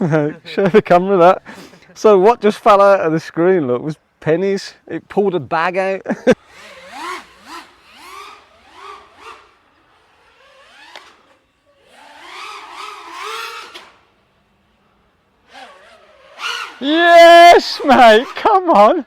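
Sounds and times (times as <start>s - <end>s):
quadcopter motors revving: 6.4s - 18.5s.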